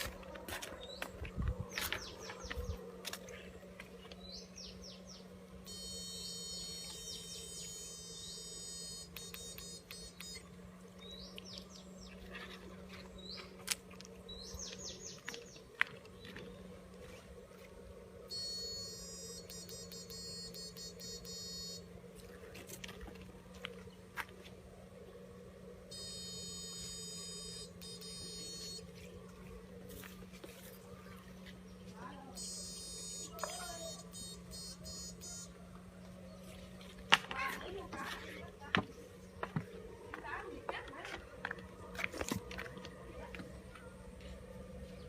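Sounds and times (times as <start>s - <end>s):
high electronic whine: 0.0s - 40.3s
steady low hum: 0.0s - 45.0s
bird chirping: 0.8s - 17.2s.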